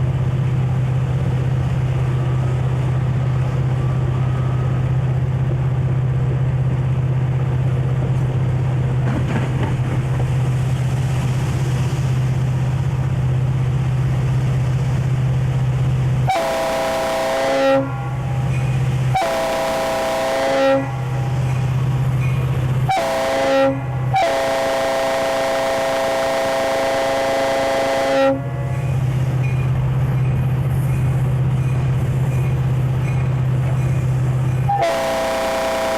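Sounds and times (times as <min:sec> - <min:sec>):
diesel locomotive droning: 0:00.0 - 0:35.9
locomotive air horn blasts: 0:16.2 - 0:21.5, 0:22.8 - 0:28.9, 0:34.6 - 0:35.9.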